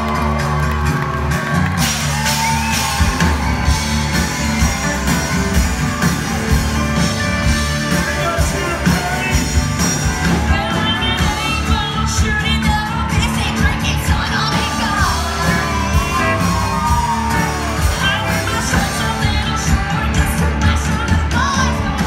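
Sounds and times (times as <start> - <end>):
live country-rock band: 0.0 - 22.0
person singing: 7.4 - 22.0.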